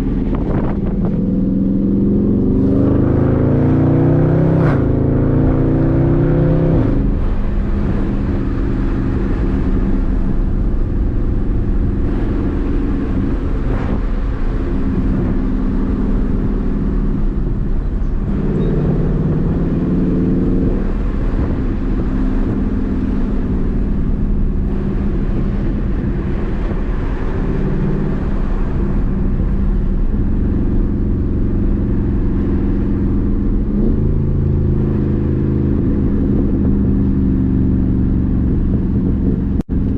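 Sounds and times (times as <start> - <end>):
car engine accelerating: 0.0 - 39.9
road noise: 0.0 - 39.9.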